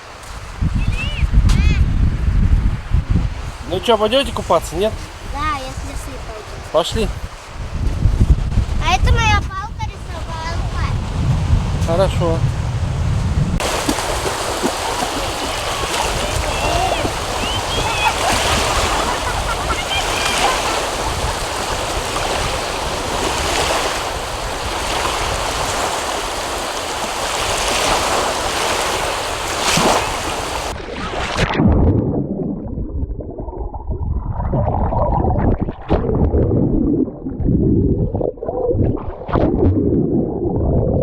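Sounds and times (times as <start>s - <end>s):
wind buffeting microphone: 0.0s - 30.8s, 31.6s - 41.0s
waves washing on shore: 0.0s - 31.6s
muffled rumbling: 7.1s - 20.4s.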